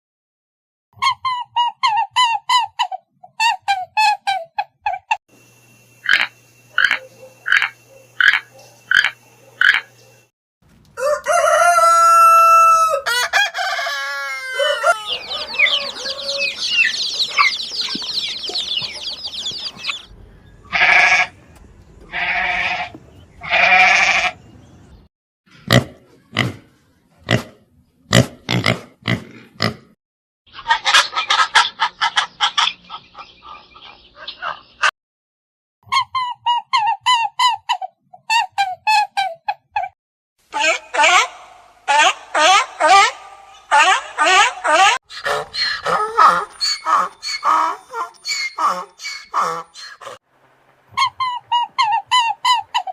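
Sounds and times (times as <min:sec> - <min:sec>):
loud harsh calls: 0:11.5 - 0:20.1, 0:40.5 - 0:50.1
drawn-out pitched animal call: 0:14.1 - 0:20.1, 0:20.7 - 0:21.4, 0:22.1 - 0:24.4, 0:40.6 - 0:50.2
rapid high chirping: 0:14.8 - 0:20.1, 0:45.5 - 0:50.0
quick clucking calls: 0:15.6 - 0:20.1.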